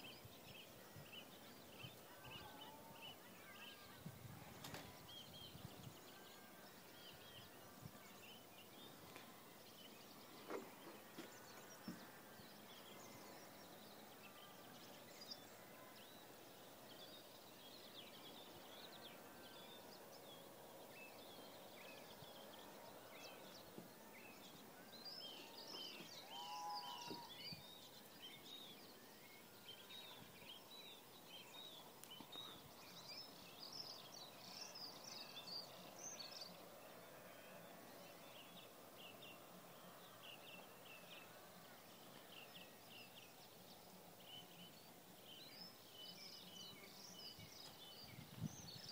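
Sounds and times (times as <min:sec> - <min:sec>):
open-air background hiss: 0:00.0 - 0:48.9
birds chirping and calling: 0:24.5 - 0:27.8.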